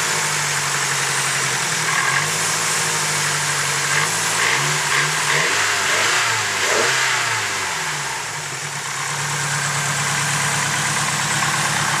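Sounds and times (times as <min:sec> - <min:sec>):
car engine idling: 0:00.0 - 0:12.0
engine lifter ticking: 0:09.2 - 0:12.0.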